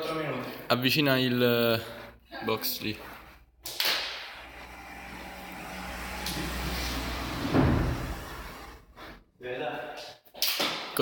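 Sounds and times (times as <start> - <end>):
gym equipment scraping and shuffling: 0.4 - 3.6, 4.3 - 9.4
heavy thud: 7.0 - 8.8.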